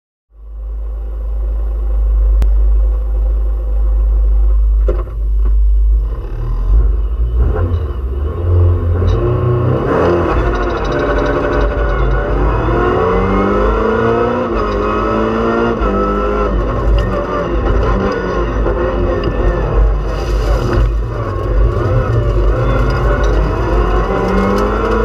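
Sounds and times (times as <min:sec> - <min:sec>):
rally car engine revving: 0:01.2 - 0:25.0.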